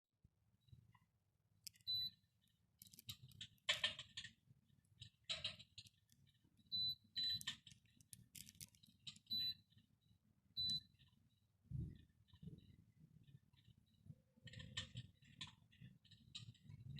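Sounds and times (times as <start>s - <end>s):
clicks: 1.6s - 2.0s, 2.8s - 3.9s, 7.2s - 9.3s
handling noises: 2.8s - 3.7s, 7.4s - 9.2s.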